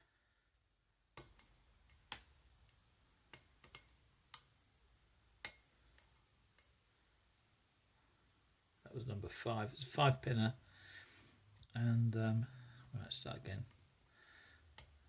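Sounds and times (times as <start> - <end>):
lock pick metal clicks: 1.2 - 4.5.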